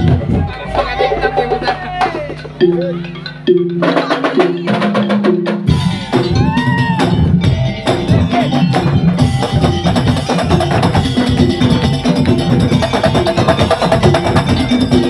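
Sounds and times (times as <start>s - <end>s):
drums: 0.0s - 15.0s
jingling percussion: 0.0s - 15.0s
pitched melodic figure: 0.0s - 15.0s.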